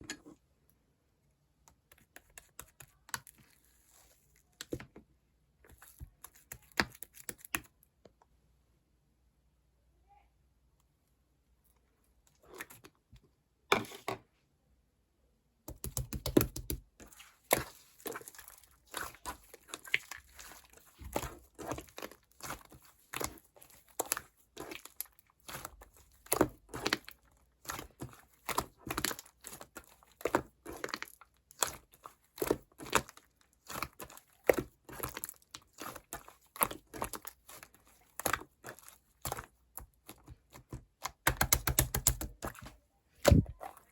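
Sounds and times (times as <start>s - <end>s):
slime squishing and popping: 17.4s - 42.6s.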